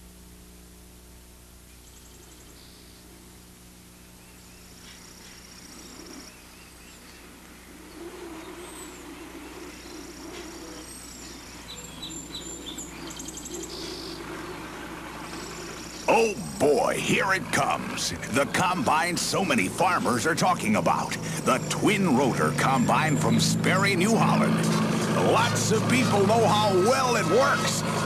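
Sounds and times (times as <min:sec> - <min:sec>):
combine harvester hum: 0:00.0 - 0:28.0
cartoon birds chirping: 0:04.6 - 0:28.0.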